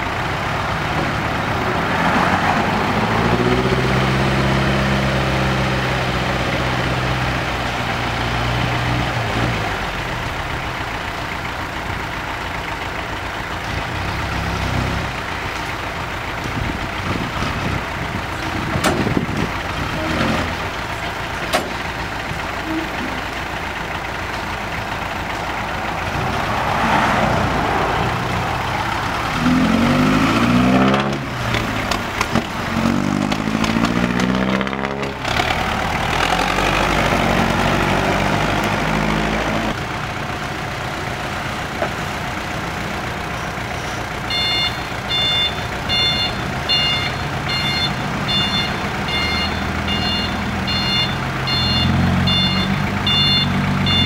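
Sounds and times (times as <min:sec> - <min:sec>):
truck diesel engine revving: 0:00.0 - 0:54.0
reversing alarm beeping: 0:44.3 - 0:54.0.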